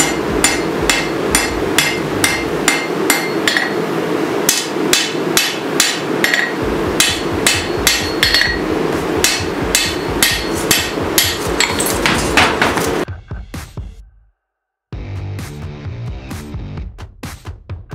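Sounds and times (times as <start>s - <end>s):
hammer ringing on anvil: 0.0s - 3.8s, 4.5s - 12.2s
steady background noise: 0.0s - 13.1s.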